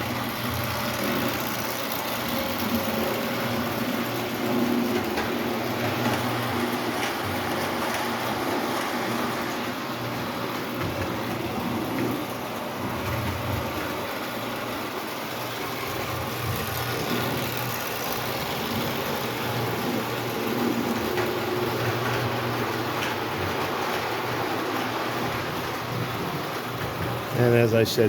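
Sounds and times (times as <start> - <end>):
metal wheels rumbling on rails: 0.0 - 28.0
toy train motor humming: 0.0 - 28.0.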